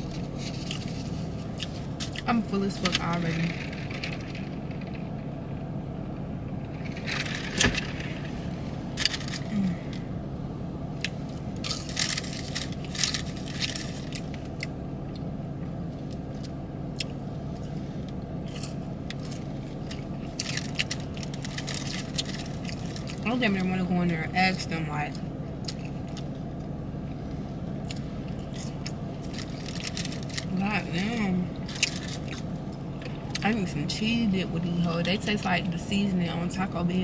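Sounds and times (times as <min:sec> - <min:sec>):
food wrapping crinkling: 0:00.0 - 0:02.2, 0:11.6 - 0:14.6, 0:18.5 - 0:23.2, 0:28.3 - 0:30.6, 0:31.6 - 0:32.4
car engine idling: 0:00.0 - 0:37.0.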